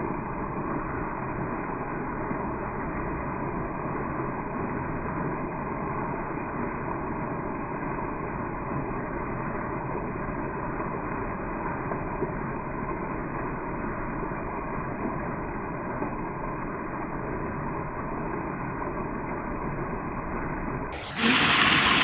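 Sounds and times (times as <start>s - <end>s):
waterfall rushing: 21.0s - 22.0s.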